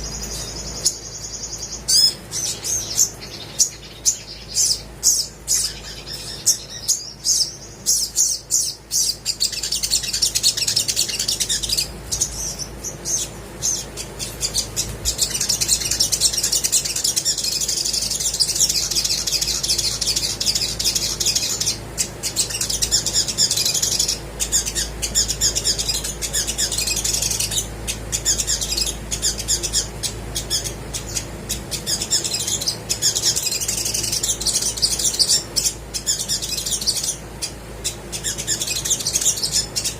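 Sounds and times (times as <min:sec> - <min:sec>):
sunbird chips and twittering song: 0:00.0 - 0:39.9.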